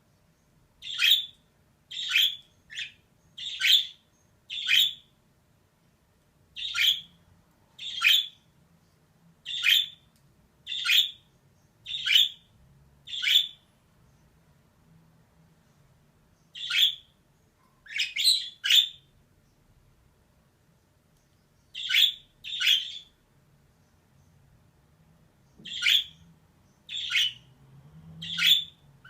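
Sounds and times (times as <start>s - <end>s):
budgerigar calling: 0.8s - 1.3s, 1.9s - 5.1s, 6.6s - 7.2s, 7.8s - 8.4s, 9.5s - 10.0s, 10.7s - 11.2s, 11.9s - 12.4s, 13.1s - 13.6s, 16.5s - 17.1s, 17.9s - 19.0s, 21.8s - 23.1s, 25.6s - 26.2s, 26.9s - 27.4s, 28.2s - 28.8s.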